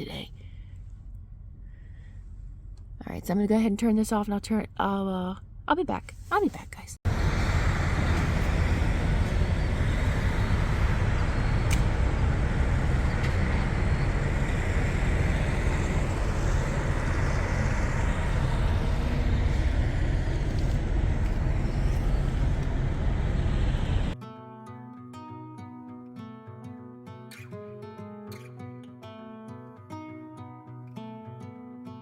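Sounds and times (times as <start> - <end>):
low rumble of road traffic: 7.1 - 24.2.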